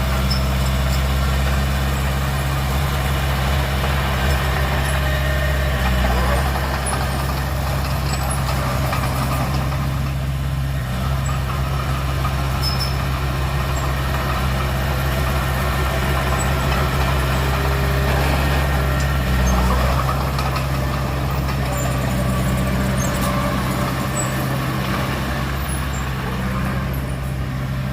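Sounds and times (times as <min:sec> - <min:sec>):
heavy diesel engine droning: 0:00.0 - 0:27.9.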